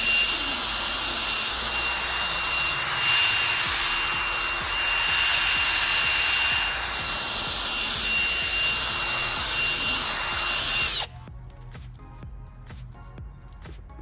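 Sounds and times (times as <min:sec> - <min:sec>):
power drill motor whine: 0:00.0 - 0:11.1.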